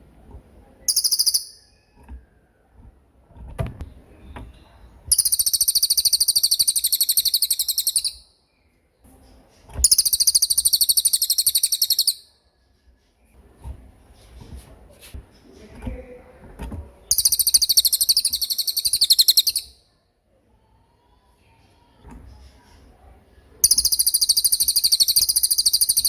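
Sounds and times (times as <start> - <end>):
songbird rattling trills: 0.9 - 1.8, 5.1 - 8.2, 9.8 - 12.2, 17.1 - 19.7, 23.6 - 26.0.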